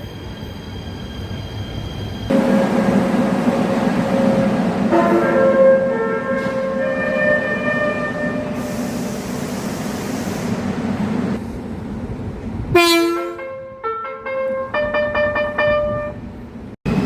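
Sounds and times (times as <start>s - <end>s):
train running rumble: 2.0s - 13.9s
train horn: 4.9s - 8.8s, 12.7s - 16.2s.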